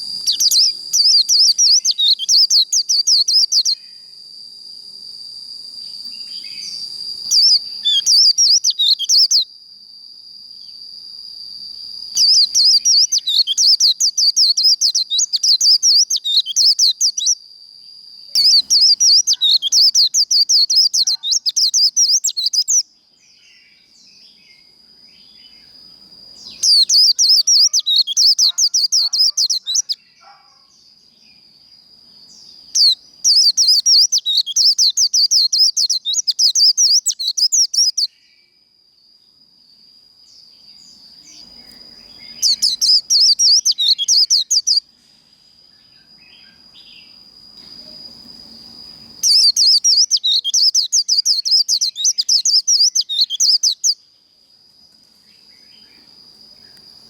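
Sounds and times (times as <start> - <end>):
bird chattering song: 0.0 - 3.8, 6.2 - 9.5, 12.2 - 17.4, 18.3 - 22.8, 26.4 - 30.7, 32.4 - 38.1, 41.3 - 44.8, 49.2 - 54.0.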